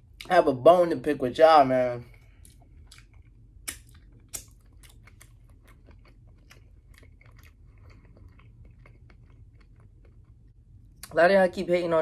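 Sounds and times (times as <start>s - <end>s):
person chewing: 2.1s - 11.1s
wet mouth clicks: 2.4s - 4.9s.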